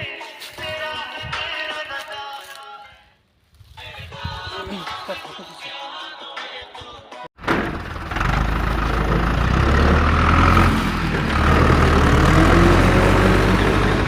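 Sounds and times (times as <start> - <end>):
truck engine rumbling: 7.4 - 14.0.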